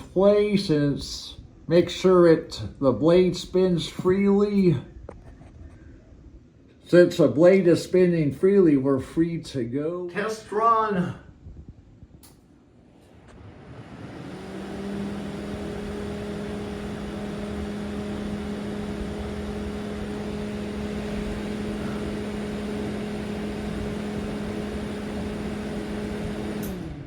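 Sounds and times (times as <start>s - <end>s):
exhaust fan humming: 0.0s - 27.0s
exhaust fan switch click: 12.2s - 12.5s.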